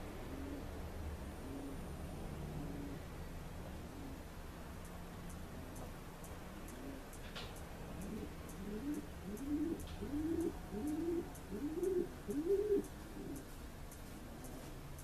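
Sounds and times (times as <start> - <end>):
bird cooing: 0.2 - 0.8, 1.4 - 1.8, 2.5 - 3.1, 3.8 - 4.2, 6.6 - 7.1, 7.9 - 13.5.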